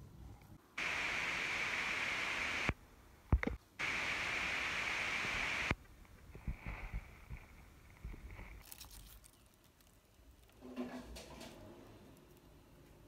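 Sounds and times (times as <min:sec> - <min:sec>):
bursts of steady hiss: 0:00.8 - 0:08.5.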